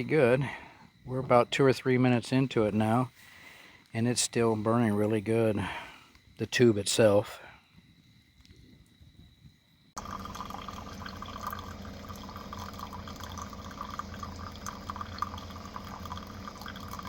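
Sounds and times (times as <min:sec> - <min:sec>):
water trickling and splashing: 0:10.0 - 0:17.0.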